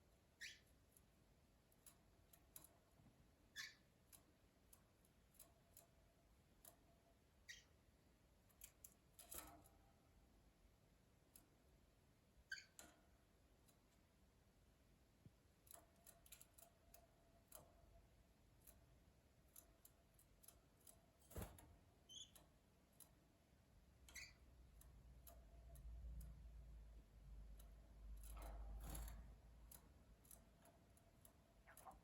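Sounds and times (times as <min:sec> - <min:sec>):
high-pitched bird peeps: 0:00.4 - 0:00.7, 0:03.6 - 0:03.9, 0:12.5 - 0:12.8, 0:24.1 - 0:24.4
birds clicking and tapping in cage: 0:00.4 - 0:07.7, 0:08.4 - 0:10.1, 0:12.5 - 0:14.1, 0:15.3 - 0:32.0.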